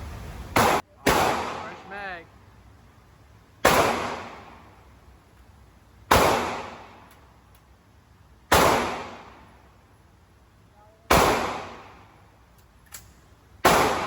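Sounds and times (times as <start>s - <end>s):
gunshots with echo: 0.6s - 2.0s, 3.6s - 4.6s, 6.1s - 7.0s, 8.5s - 9.4s, 11.1s - 12.0s, 13.6s - 14.0s.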